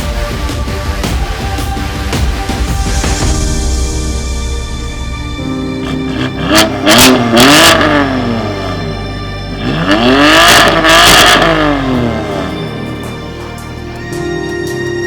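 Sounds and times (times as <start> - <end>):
background music: 0.0 - 15.0
car exhaust revving: 5.7 - 13.1.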